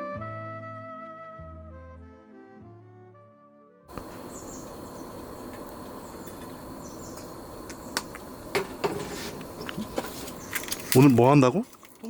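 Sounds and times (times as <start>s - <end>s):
insects chirping: 3.9s - 12.0s.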